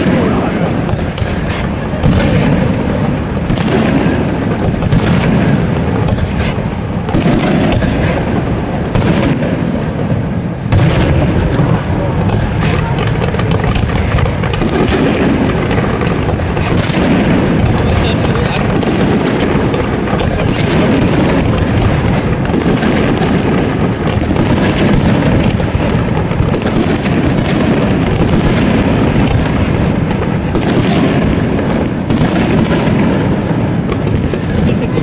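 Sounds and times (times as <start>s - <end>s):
low rumble of explosions: 0.0s - 35.0s
firework shells bursting: 10.6s - 34.6s.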